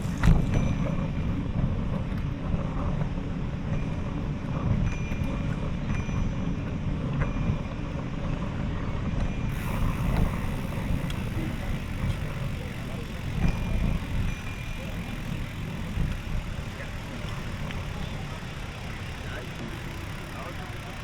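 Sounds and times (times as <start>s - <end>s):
wind and road noise rumble: 0.0s - 21.0s
faint clicks: 9.5s - 21.0s.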